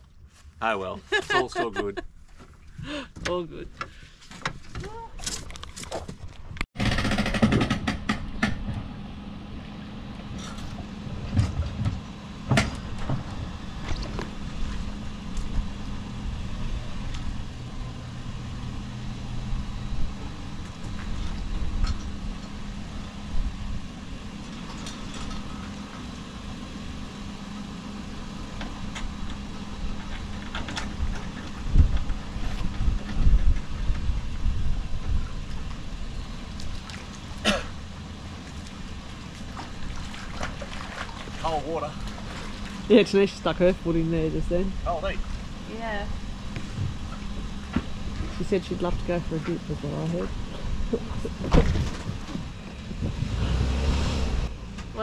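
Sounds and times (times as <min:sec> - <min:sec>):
knocks and clunks: 0:03.2 - 0:09.0, 0:10.4 - 0:14.4, 0:50.4 - 0:53.3.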